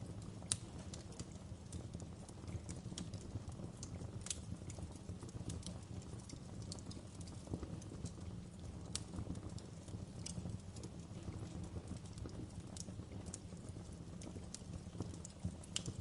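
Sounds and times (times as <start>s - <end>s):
low rumble of burning logs: 0.0s - 16.0s
wood fire crackling: 0.0s - 16.0s.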